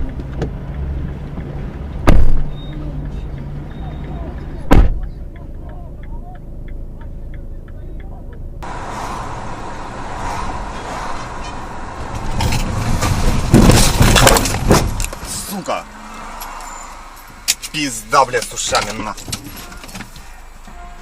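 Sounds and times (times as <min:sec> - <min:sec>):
faint regular ticking: 0:00.0 - 0:08.6
car road and engine rumble: 0:00.0 - 0:21.0
loud knocks and bangs: 0:02.0 - 0:02.5, 0:12.0 - 0:15.0.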